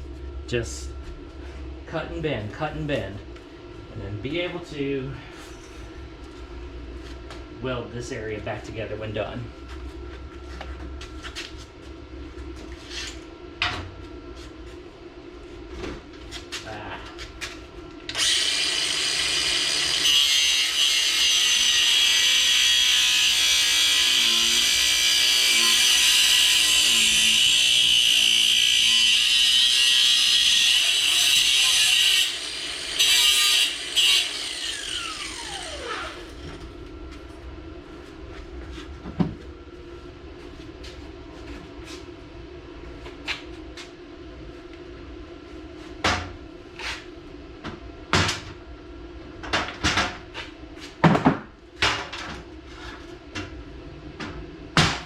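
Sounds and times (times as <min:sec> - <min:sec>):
angle grinder cutting steel: 0:18.1 - 0:36.3.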